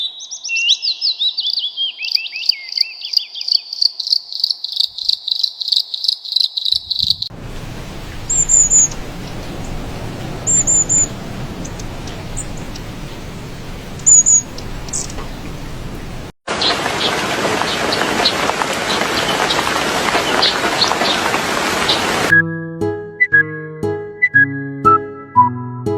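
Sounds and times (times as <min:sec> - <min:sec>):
small birds chirping: 0:00.0 - 0:22.3
steady hiss: 0:07.2 - 0:16.4.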